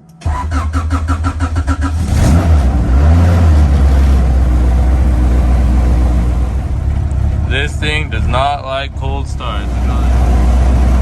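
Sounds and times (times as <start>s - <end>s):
car starter cranking: 0.0s - 2.8s
car engine running: 0.0s - 11.0s.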